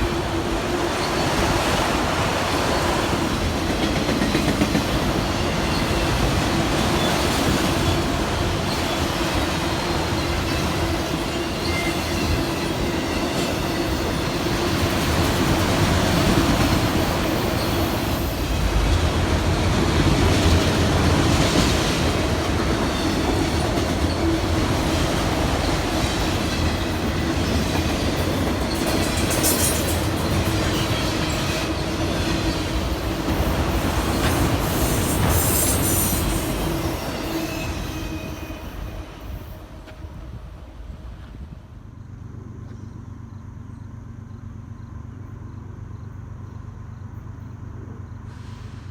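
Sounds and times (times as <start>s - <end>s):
train wheels rumbling on track: 0.0s - 48.9s
wheel squeals: 5.2s - 18.5s, 22.8s - 39.7s.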